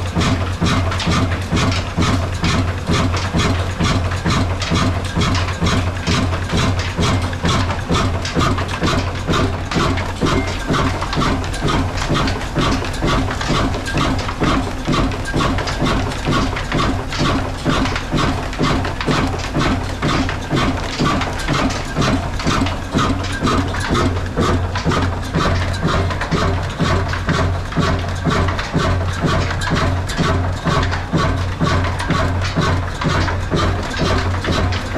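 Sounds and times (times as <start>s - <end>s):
diesel engine chugging: 0.0s - 34.9s
low hum of flour mill: 0.0s - 34.9s.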